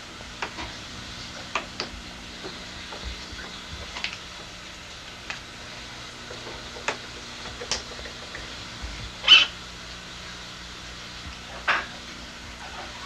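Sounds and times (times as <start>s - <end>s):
birds squawking: 9.2s - 9.6s.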